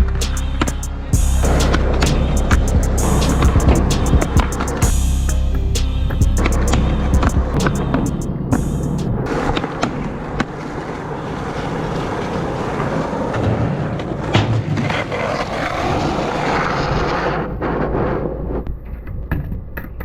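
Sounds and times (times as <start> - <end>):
skateboard clacks: 9.2 - 20.0
skateboard wheels rolling: 9.2 - 20.0.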